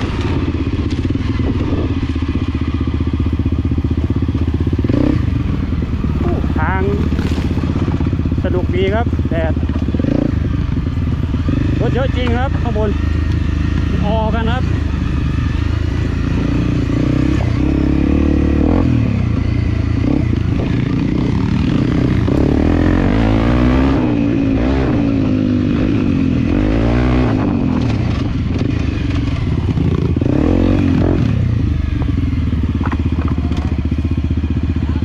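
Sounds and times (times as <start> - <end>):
clatter: 0.0 - 2.6, 6.2 - 8.2, 27.3 - 35.0
motorcycle engine revving: 0.0 - 35.0.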